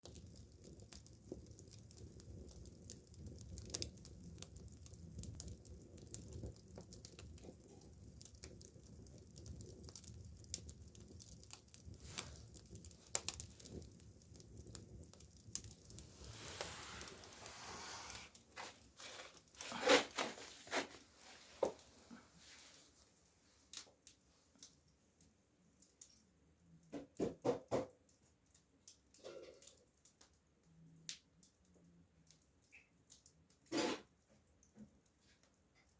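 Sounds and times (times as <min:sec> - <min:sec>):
campfire crackling and popping: 0:00.0 - 0:21.9
soft rushing hiss: 0:16.0 - 0:19.6.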